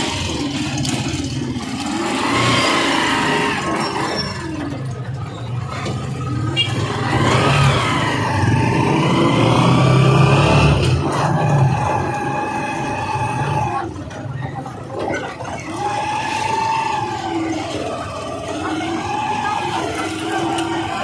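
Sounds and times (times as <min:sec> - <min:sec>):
motorcycle engine accelerating: 0:00.0 - 0:14.1.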